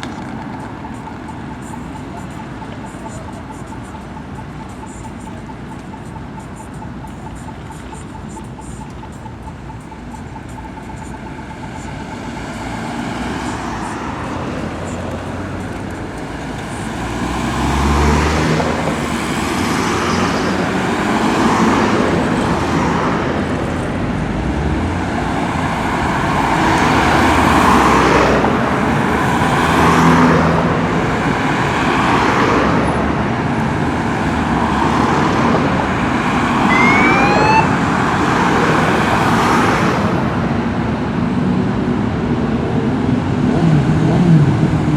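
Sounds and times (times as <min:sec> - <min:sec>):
short rising whine: 0:36.7 - 0:37.8.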